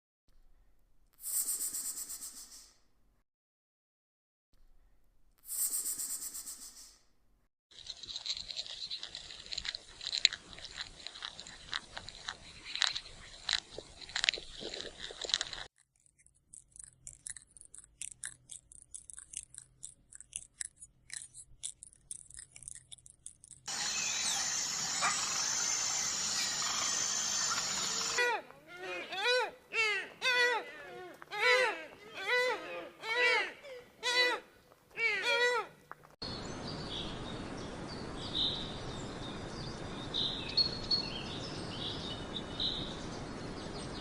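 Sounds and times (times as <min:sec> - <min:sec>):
animals crunching feed: 0:07.7 - 0:28.6.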